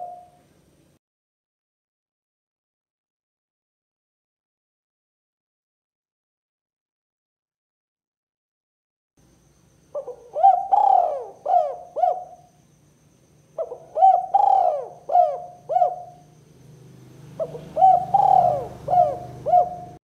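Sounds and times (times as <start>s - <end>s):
dove cooing: 0.0s - 0.5s, 9.9s - 12.6s, 13.6s - 20.0s.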